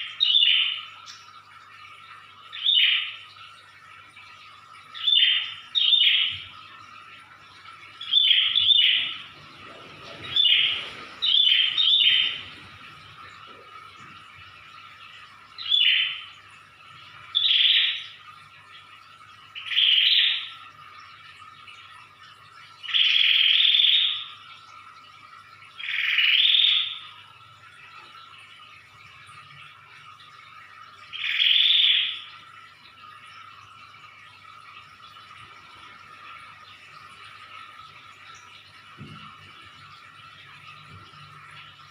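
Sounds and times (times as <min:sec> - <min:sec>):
faint steady hum: 0:00.0 - 0:41.9
bird calling: 0:08.0 - 0:12.6
bird trilling: 0:10.2 - 0:12.4.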